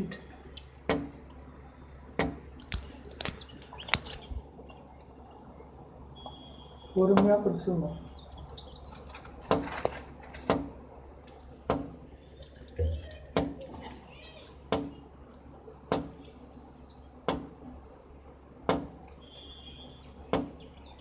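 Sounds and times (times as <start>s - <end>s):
faint bird chirps: 2.8s - 7.1s, 7.9s - 9.3s, 12.1s - 17.2s, 19.2s - 21.0s.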